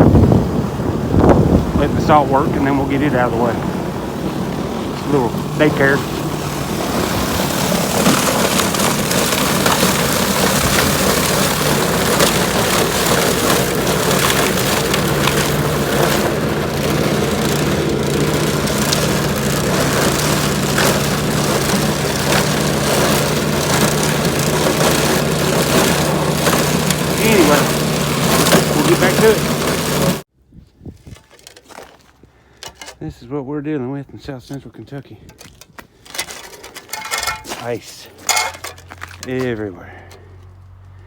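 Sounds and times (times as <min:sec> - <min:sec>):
small gas engine running: 0:00.0 - 0:30.3
ice cracking and crunching: 0:05.0 - 0:30.2, 0:31.0 - 0:33.0, 0:35.3 - 0:40.5.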